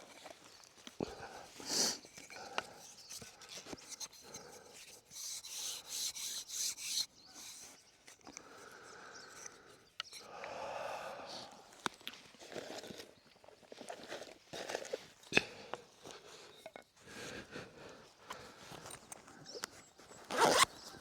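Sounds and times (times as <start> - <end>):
bow drill wood rubbing: 2.9 - 8.3, 20.3 - 20.7.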